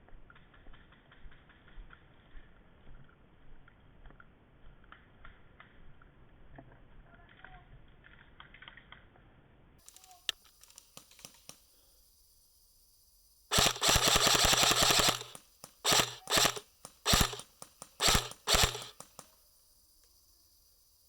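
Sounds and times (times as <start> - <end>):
airsoft rifle firing bursts: 13.5 - 19.2.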